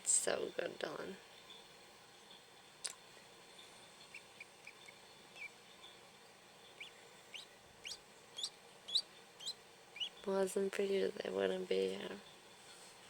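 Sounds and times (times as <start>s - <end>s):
ducklings peeping: 4.0s - 5.6s, 6.7s - 10.3s.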